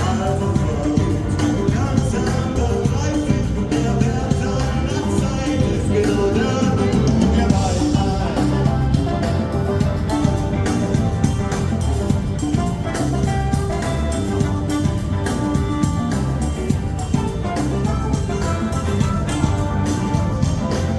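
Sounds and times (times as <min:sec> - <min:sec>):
drums keeping a steady beat: 0:00.0 - 0:20.9
live band playing: 0:00.0 - 0:20.9.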